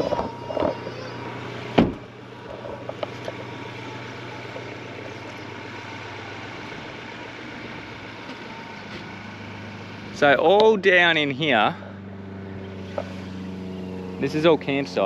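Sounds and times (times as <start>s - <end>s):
vehicle engine humming: 0.0s - 15.0s
sharp thump: 1.8s - 2.1s.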